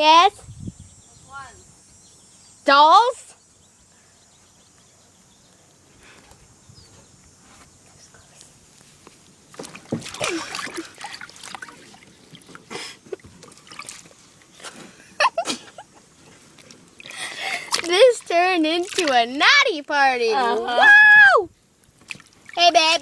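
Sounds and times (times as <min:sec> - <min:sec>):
water splashing and sloshing: 0:09.1 - 0:20.6, 0:21.5 - 0:23.0.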